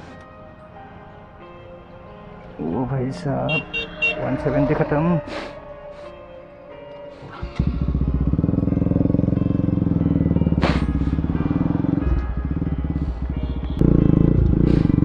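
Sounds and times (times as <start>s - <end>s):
motorcycle engine at low revs: 7.4s - 15.0s.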